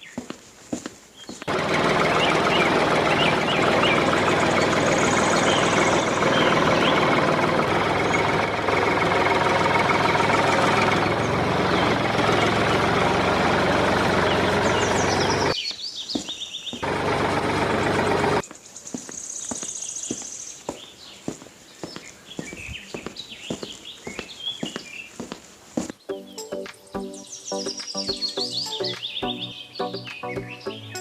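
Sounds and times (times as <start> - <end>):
small motor running: 1.5 - 15.6.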